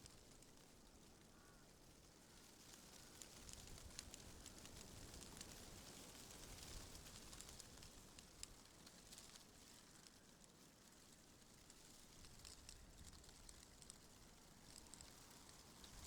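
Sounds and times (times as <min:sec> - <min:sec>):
leaves rustling in wind: 0:00.0 - 0:16.0
small light ticks: 0:00.0 - 0:16.0.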